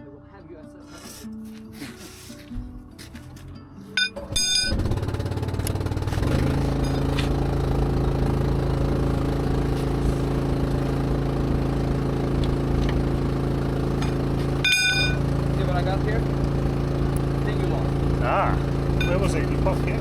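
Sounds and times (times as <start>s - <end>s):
engine starting and running: 4.0s - 20.0s.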